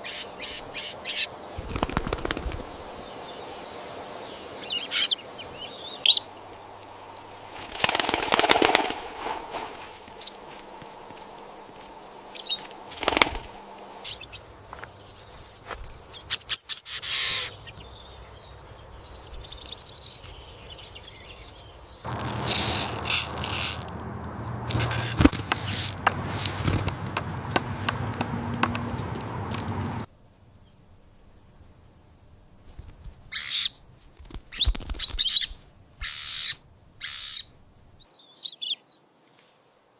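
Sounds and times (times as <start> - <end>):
wings fluttering: 0.0 - 3.3, 4.5 - 30.1, 32.5 - 38.0
small bird chirping: 0.0 - 8.2, 10.2 - 10.4, 11.6 - 28.2, 33.3 - 39.0
rustling noise: 6.7 - 14.0, 22.0 - 30.1, 32.3 - 36.0
low hum: 21.1 - 33.2.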